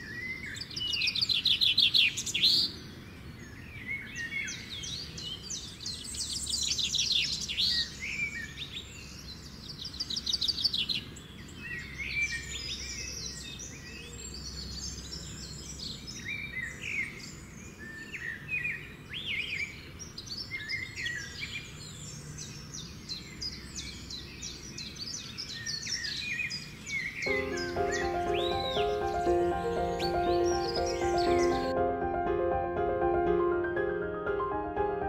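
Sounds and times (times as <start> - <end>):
birds chirping and whistling: 0.0 - 31.8
fast bird trill: 27.3 - 31.8.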